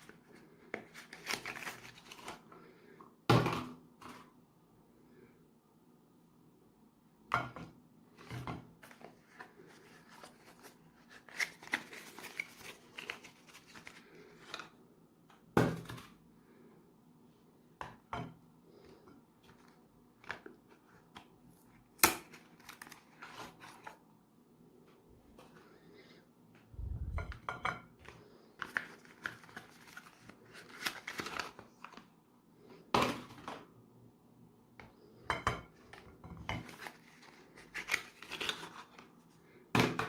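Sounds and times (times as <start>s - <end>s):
rustling and crinkling: 8.1s - 14.8s, 18.9s - 24.1s.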